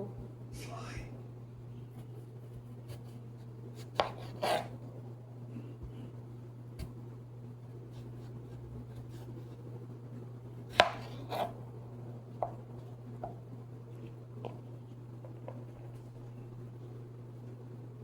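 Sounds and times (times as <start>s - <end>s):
steady low hum: 0.0s - 18.0s
knife chopping on cutting board: 3.8s - 4.8s, 10.7s - 11.6s.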